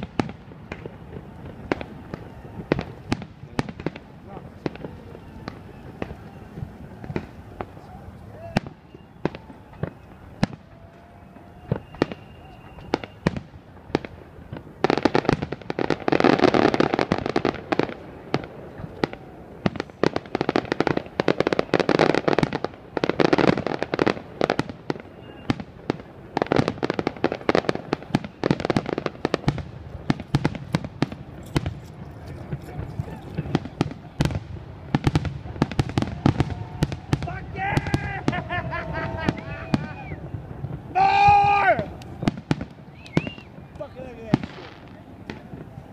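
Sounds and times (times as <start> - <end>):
fireworks bangs and pops: 0.0 - 45.9
crackling volleys of rapid pops: 39.3 - 45.8.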